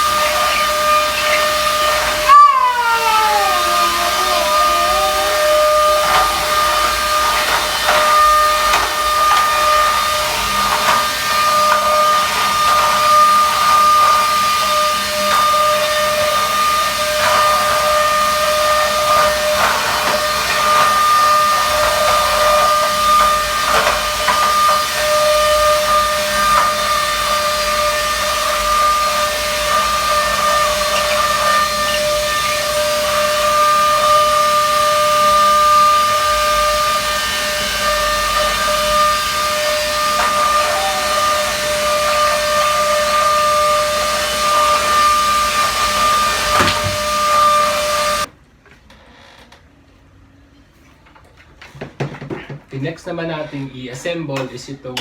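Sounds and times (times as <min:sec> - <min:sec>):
knocks and scrapes: 0:00.0 - 0:33.0
vacuum cleaner motor whine: 0:00.0 - 0:48.3.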